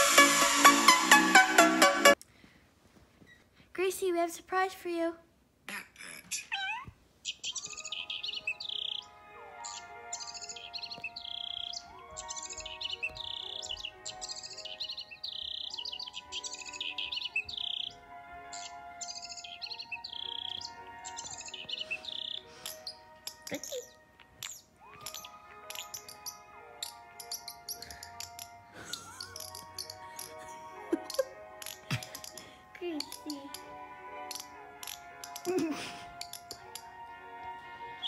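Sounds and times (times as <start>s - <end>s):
background music sliding tones: 0.0s - 2.2s, 7.5s - 38.0s
recorded songbird chirping: 6.3s - 38.0s.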